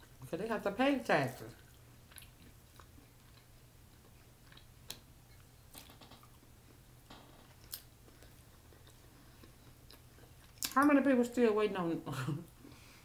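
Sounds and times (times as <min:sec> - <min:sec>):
chewing food: 0:01.4 - 0:06.9, 0:07.5 - 0:10.9.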